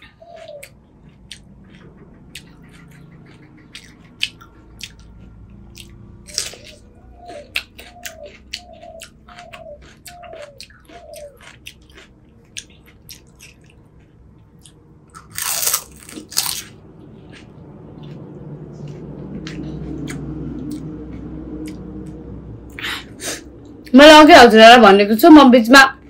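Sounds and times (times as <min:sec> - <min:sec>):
crunching crisp shells: 0:00.0 - 0:18.3.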